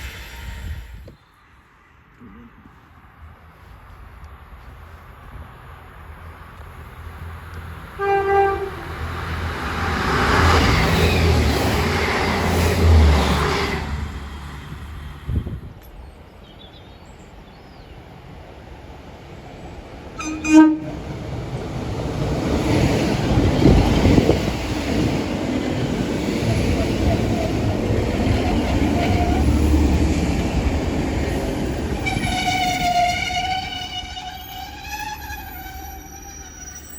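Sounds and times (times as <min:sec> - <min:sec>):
train wheel and rail noise: 0:00.0 - 0:36.9
train horn blast: 0:08.0 - 0:09.0, 0:20.2 - 0:20.9, 0:32.0 - 0:36.8.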